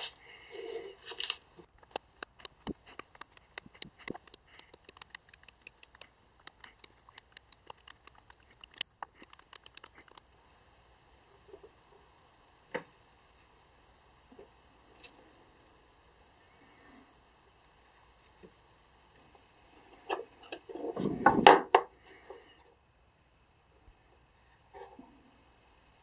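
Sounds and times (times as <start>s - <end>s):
awl ticking into wood: 1.8s - 10.2s.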